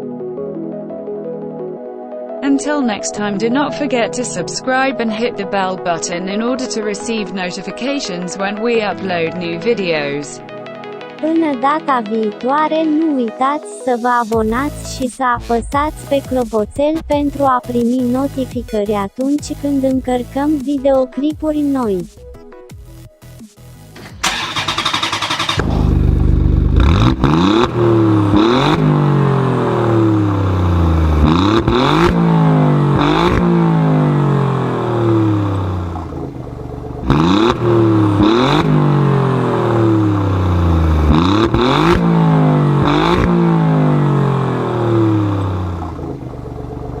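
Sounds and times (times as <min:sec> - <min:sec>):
engine revving: 0:24.0 - 0:47.0.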